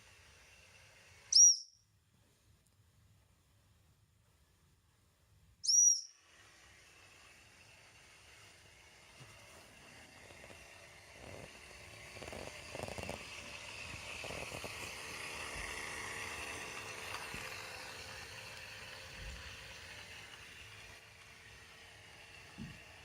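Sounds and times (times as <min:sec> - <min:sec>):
toy train electric motor: 0:00.0 - 0:01.7, 0:05.7 - 0:23.0
wheels and gears rattling on track: 0:07.0 - 0:23.0.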